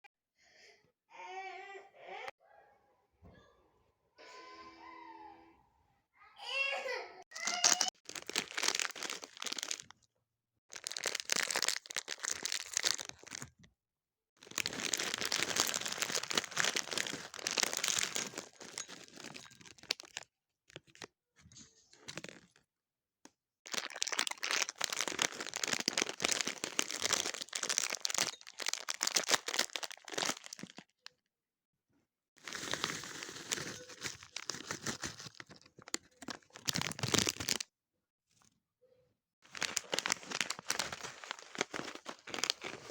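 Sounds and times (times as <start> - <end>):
plastic packaging crinkling: 7.3 - 9.9, 10.7 - 13.6, 14.4 - 21.1, 22.0 - 22.6, 23.7 - 30.9, 32.4 - 37.6, 39.4 - 42.9.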